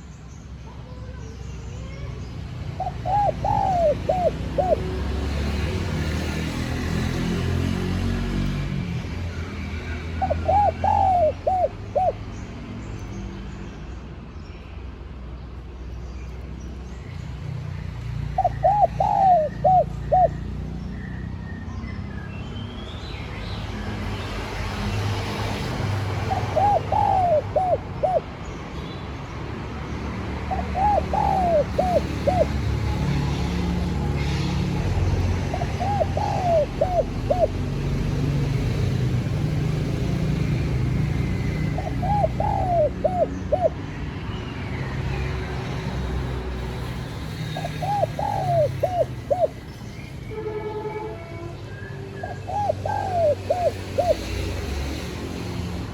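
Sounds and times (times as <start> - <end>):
dove cooing: 2.8 - 5.0, 10.2 - 12.2, 18.4 - 20.6, 26.0 - 28.4, 30.5 - 37.9, 41.3 - 43.8, 47.5 - 49.6, 52.2 - 55.0.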